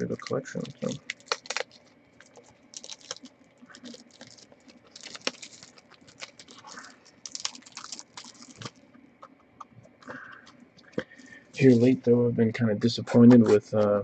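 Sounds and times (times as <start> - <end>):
card packaging crinkling: 0.0 - 9.0.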